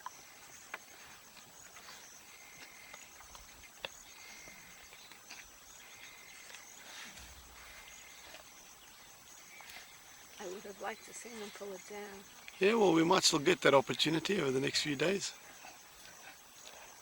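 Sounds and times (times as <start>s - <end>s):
lions chewing and tearing: 0.0s - 10.4s, 15.4s - 17.0s
insects chirping: 0.0s - 17.0s.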